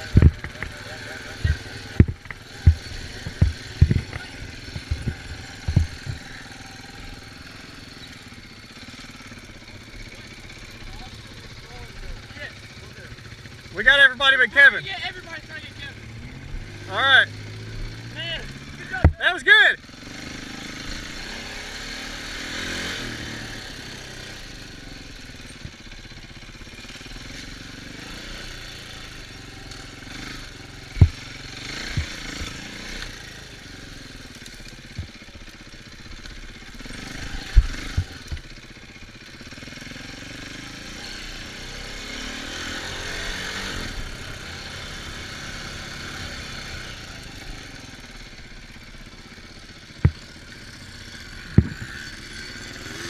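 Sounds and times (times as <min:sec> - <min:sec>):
sharp low thumps: 0:00.0 - 0:06.4
off-road vehicle engine running: 0:00.0 - 0:53.0.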